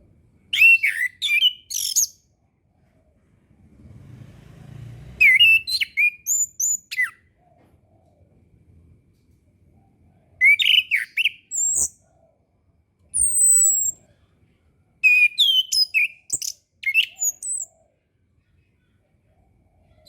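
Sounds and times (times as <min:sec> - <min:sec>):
thrush singing whistled notes: 0:00.5 - 0:02.2, 0:05.2 - 0:07.2, 0:10.4 - 0:12.0, 0:13.1 - 0:14.0, 0:15.0 - 0:17.8.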